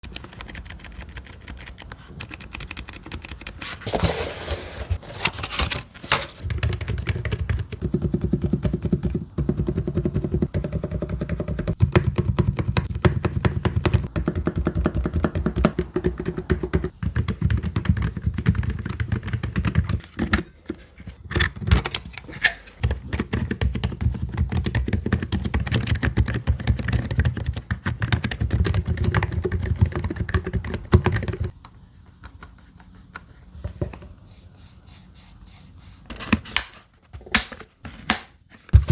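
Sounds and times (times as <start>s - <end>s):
rapid keyboard typing: 0.0s - 3.7s, 6.4s - 20.0s, 22.8s - 31.6s.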